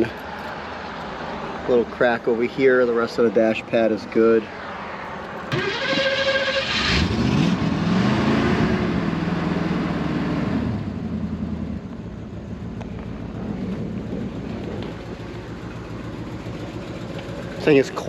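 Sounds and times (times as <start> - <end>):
car engine starting and idling: 5.2 - 18.0.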